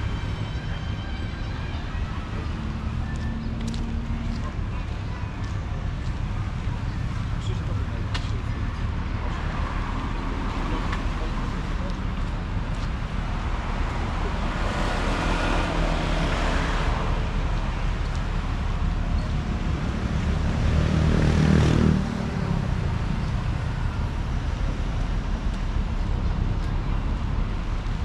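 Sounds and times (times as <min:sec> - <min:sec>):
steady traffic hum: 0:00.0 - 0:28.0
vehicle with deep engine passing: 0:18.3 - 0:28.0
vehicle passing: 0:19.6 - 0:25.0.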